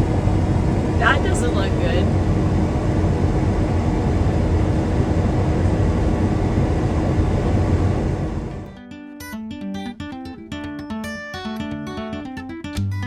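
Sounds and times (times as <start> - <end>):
combine harvester drone: 0.0 - 8.8
faint steady whine: 0.0 - 8.8.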